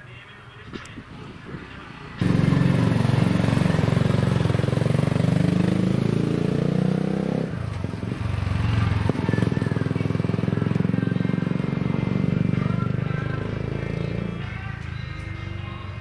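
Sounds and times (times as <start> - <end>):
motorcycle engine accelerating: 2.0 - 14.6.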